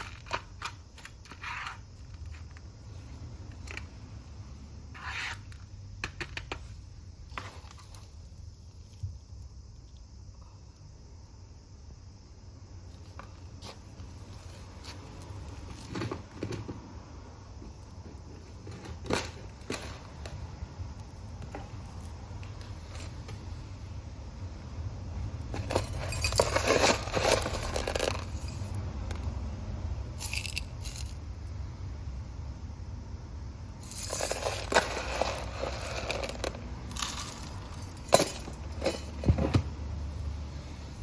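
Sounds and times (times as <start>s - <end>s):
rustling and crinkling: 0.0s - 4.0s, 6.4s - 9.3s, 12.9s - 16.8s, 17.6s - 20.4s, 21.4s - 23.8s, 25.4s - 28.8s, 33.8s - 41.0s
soil and pots scraping: 25.4s - 28.7s, 33.8s - 39.6s.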